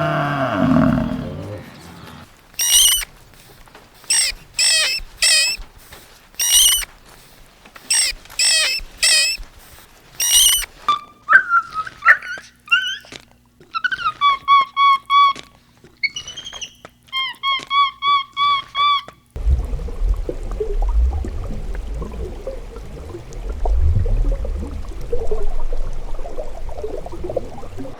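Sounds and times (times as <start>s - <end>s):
deep animal roar: 0.0s - 2.3s
harsh high-pitched squawks: 2.6s - 3.1s, 4.0s - 5.6s, 6.4s - 6.9s, 7.8s - 9.4s, 10.2s - 13.1s
short whistled chirps: 2.6s - 3.1s, 4.1s - 5.6s, 6.4s - 6.9s, 7.9s - 9.4s, 10.2s - 12.9s.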